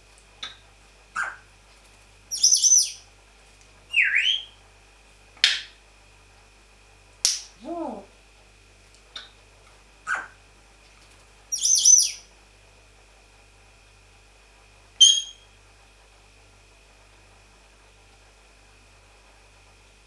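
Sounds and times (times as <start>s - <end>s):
parrot whistles: 1.2s - 1.4s, 2.3s - 3.0s, 3.9s - 4.6s, 11.5s - 12.2s, 15.0s - 15.5s.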